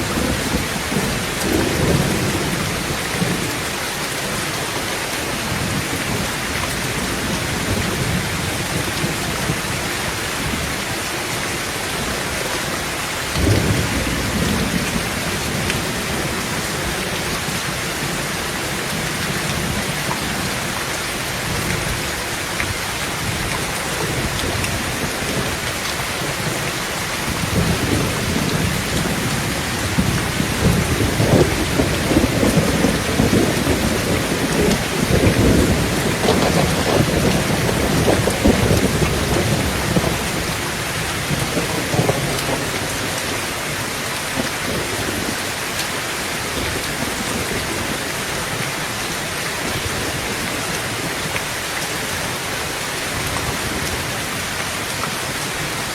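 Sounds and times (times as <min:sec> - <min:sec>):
rolling thunder rumbling: 0:00.0 - 0:03.8, 0:11.9 - 0:43.2
heavy rain on a tin roof: 0:00.0 - 0:55.9.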